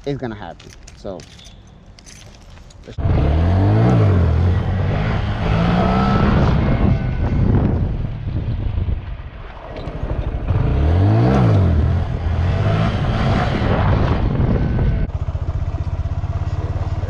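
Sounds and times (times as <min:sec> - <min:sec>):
motorcycle engine revving: 0:03.0 - 0:09.0, 0:09.6 - 0:17.0.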